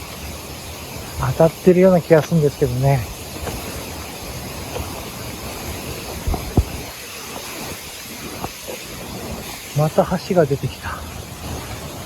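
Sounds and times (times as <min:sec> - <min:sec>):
wind buffeting microphone: 0:00.0 - 0:10.0
mountain stream rushing: 0:00.0 - 0:12.0
soft thumps: 0:06.2 - 0:06.9.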